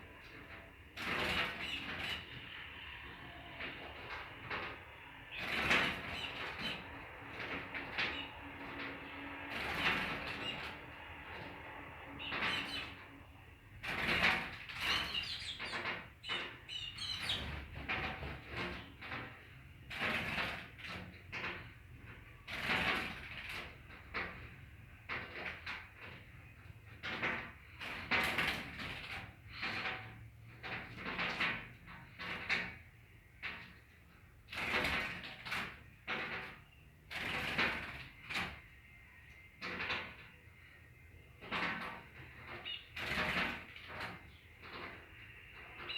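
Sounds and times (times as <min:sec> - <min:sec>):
bird chirps: 0:14.9 - 0:17.4.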